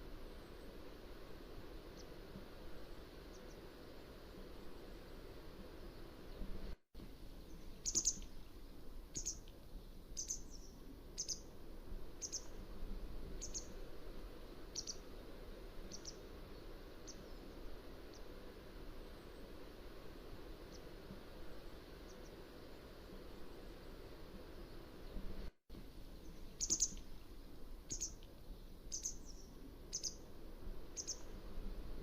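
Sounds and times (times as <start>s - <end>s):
low background hiss: 0.0s - 32.0s
bird calling with sharp high notes: 26.6s - 27.0s, 28.9s - 30.2s, 31.0s - 31.3s.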